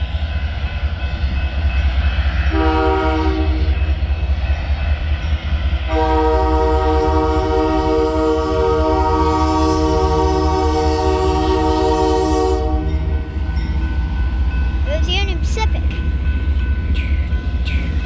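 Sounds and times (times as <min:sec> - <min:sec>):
train rumbling: 0:00.0 - 0:18.0
train horn blasts: 0:02.5 - 0:03.8, 0:05.9 - 0:13.5.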